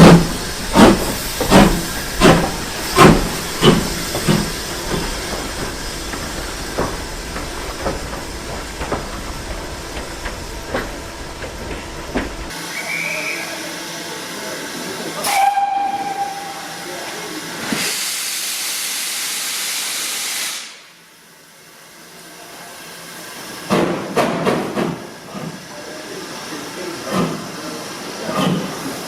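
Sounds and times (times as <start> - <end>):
steam locomotive exhaust beats: 0.0 - 20.9
steady steam hiss: 0.0 - 23.7, 24.8 - 29.0.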